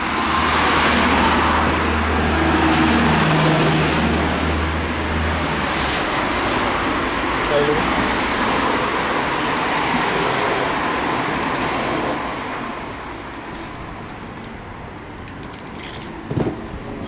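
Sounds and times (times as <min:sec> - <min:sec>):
road vehicle rushing: 0:00.0 - 0:14.0
short thump: 0:16.3 - 0:16.7.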